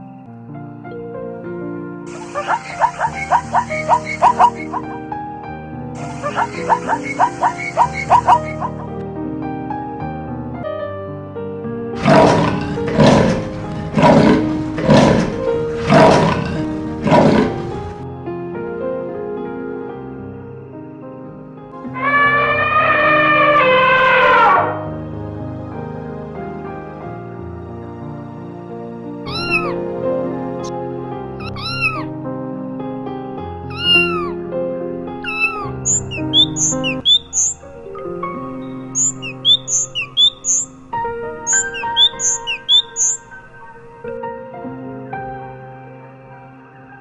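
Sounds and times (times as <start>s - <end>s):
background music: 0.0s - 47.0s
large animal rough calls: 2.1s - 5.0s, 6.0s - 9.0s, 12.0s - 18.0s, 21.8s - 24.9s
cat meowing: 22.0s - 24.8s, 29.3s - 29.8s, 33.7s - 34.4s.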